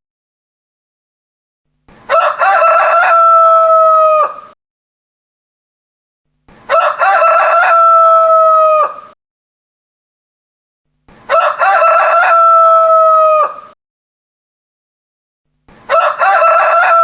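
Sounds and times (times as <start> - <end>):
rooster crowing: 2.1 - 4.6, 6.7 - 9.2, 11.3 - 13.8, 15.9 - 17.0.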